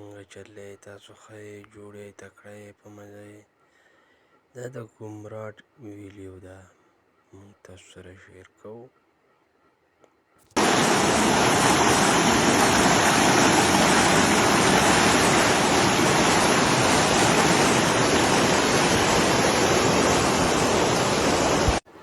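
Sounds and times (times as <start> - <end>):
rushing mountain water: 10.6 - 21.8.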